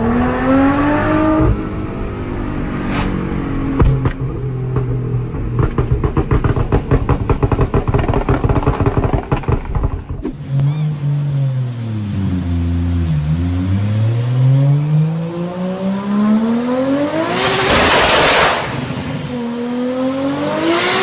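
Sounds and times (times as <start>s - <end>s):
engine revving: 0.0s - 3.8s, 7.4s - 21.0s
exhaust popping and crackling: 3.1s - 10.5s.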